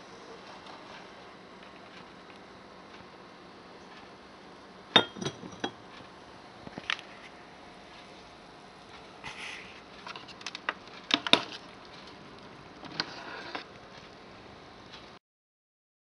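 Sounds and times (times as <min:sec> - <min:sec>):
faint hiss: 0:08.0 - 0:09.9.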